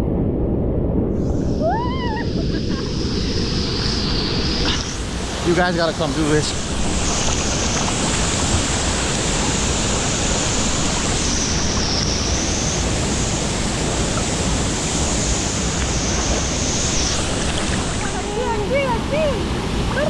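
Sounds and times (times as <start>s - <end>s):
wind buffeting microphone: 0.0s - 20.0s
waterfall rushing: 1.6s - 20.0s.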